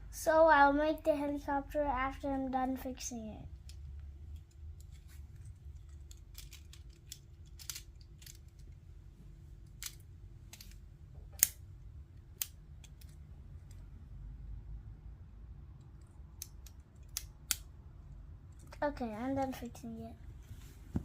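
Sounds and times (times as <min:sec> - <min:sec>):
plastic bricks clicking together: 0:05.8 - 0:08.8, 0:09.7 - 0:10.8.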